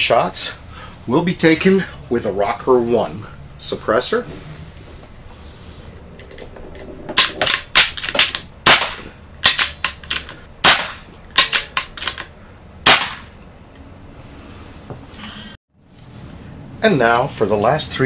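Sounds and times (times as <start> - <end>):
suppressed air pistol shots: 8.6 - 9.8, 10.6 - 11.9, 12.8 - 13.3.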